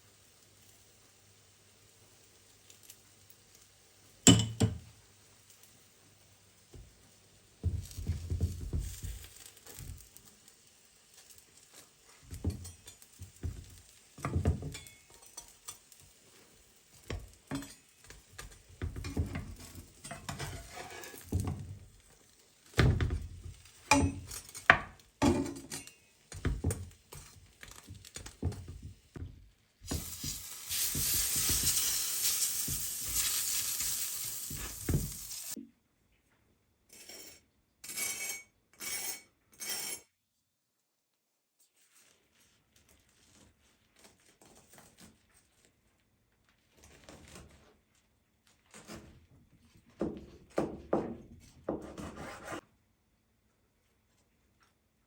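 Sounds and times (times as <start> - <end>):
food sizzling in a hot pan: 0.0 - 35.6
utensils scraping dishes: 17.5 - 21.4.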